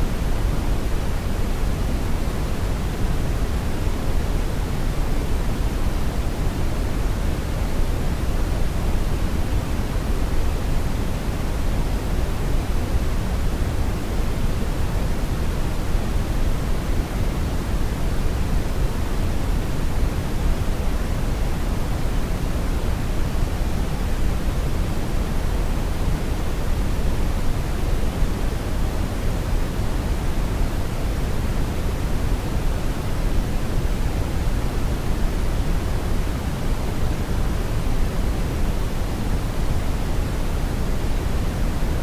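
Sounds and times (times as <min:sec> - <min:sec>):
brown noise rumbling hiss: 0:00.0 - 0:42.0.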